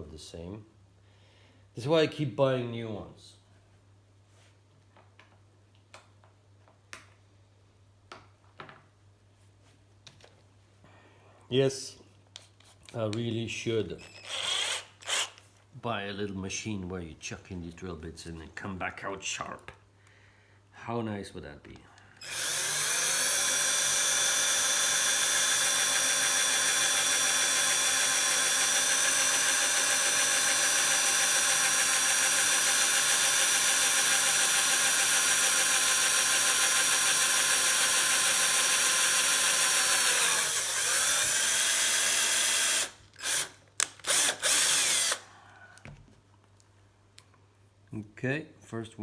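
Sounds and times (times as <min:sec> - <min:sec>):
electric drill boring: 0:14.0 - 0:15.4, 0:22.2 - 0:45.3.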